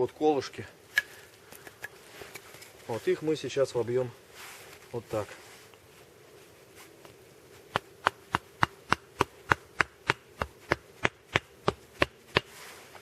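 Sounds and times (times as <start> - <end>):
hammering wooden stakes: 7.7 - 12.6.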